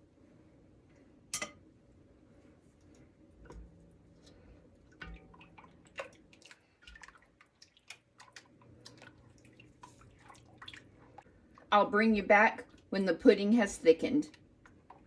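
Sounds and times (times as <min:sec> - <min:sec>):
soft wet stirring sounds: 0:00.0 - 0:11.8, 0:12.4 - 0:13.4, 0:14.2 - 0:15.0.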